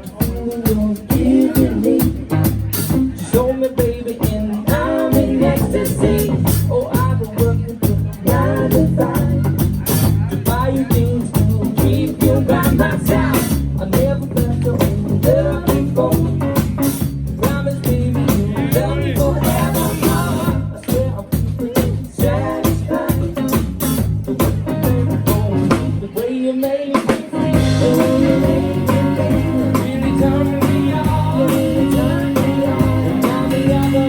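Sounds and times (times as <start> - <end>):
bass: 0.0 - 34.0
drums keeping steady beat: 0.0 - 34.0
person singing: 0.0 - 34.0
electric guitar: 27.0 - 34.0.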